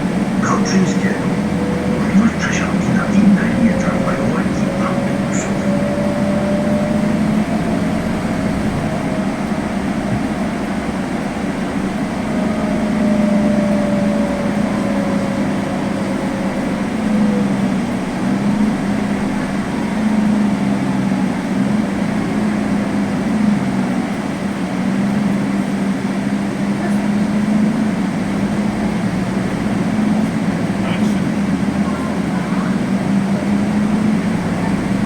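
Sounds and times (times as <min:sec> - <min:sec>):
faint whine falling in pitch: 0:00.0 - 0:21.6
bus engine hum: 0:00.0 - 0:35.0
road noise: 0:00.0 - 0:35.0.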